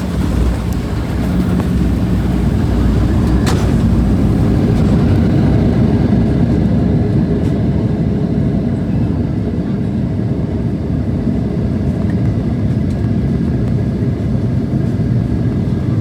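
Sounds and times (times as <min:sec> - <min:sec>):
jet engines spooling up: 0:00.0 - 0:07.0
wheels rumbling on runway: 0:00.0 - 0:09.2.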